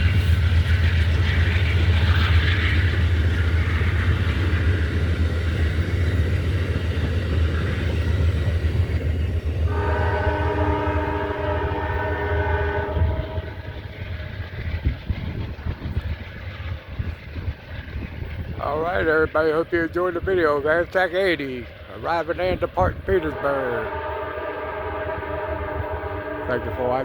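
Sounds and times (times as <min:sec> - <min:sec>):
train rumbling: 0:00.0 - 0:27.0
train horn chord: 0:09.7 - 0:13.7, 0:23.1 - 0:27.0.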